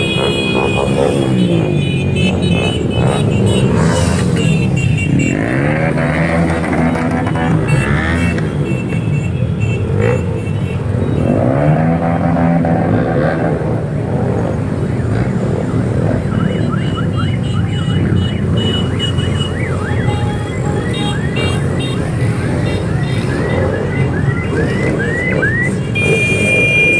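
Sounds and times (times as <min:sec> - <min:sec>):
motorcycle engines revving: 0:00.0 - 0:26.9
rising electronic siren yelp: 0:14.9 - 0:26.9.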